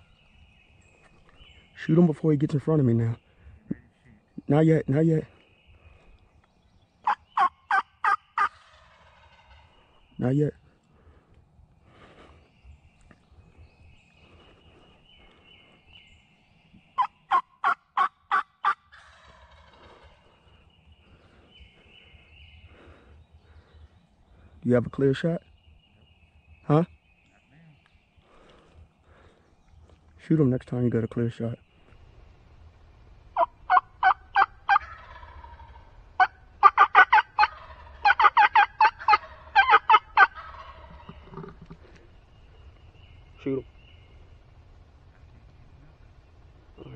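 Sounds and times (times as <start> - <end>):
turkey yelping: 7.0 - 9.7, 17.0 - 20.1, 33.4 - 41.8.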